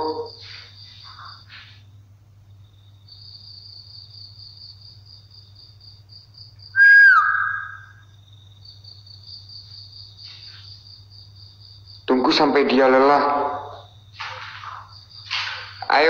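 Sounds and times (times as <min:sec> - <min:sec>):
crickets chirping: 0:00.0 - 0:16.0
whistle-like squeal: 0:06.8 - 0:08.0.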